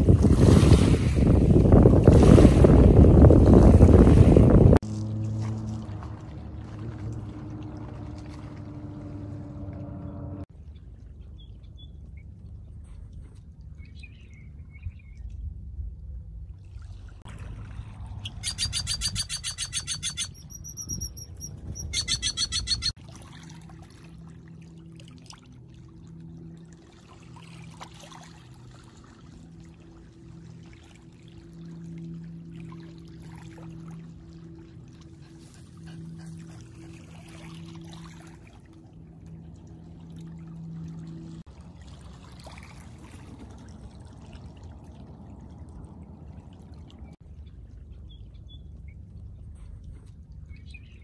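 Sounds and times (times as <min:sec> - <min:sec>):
water rumbling: 0:00.0 - 0:51.0
bird rattling call: 0:18.2 - 0:22.9
thin high bird whistles: 0:18.2 - 0:22.9.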